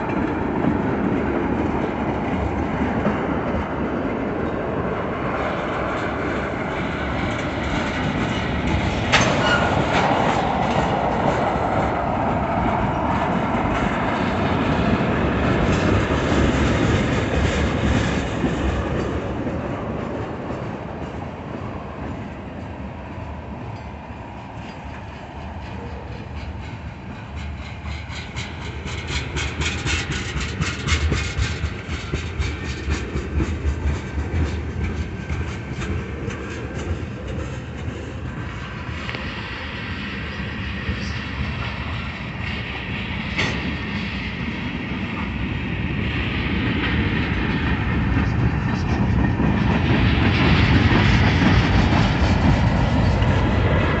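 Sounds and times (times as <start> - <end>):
wheels clacking over rail joints: 0.0 - 22.9, 23.5 - 39.3
freight train wheels rumbling on rails: 0.0 - 54.0.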